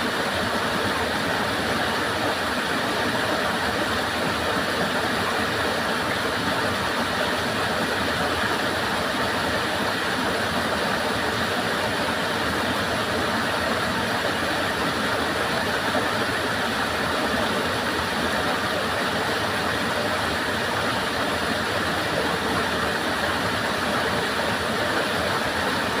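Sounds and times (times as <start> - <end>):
stream flowing: 0.0 - 26.0.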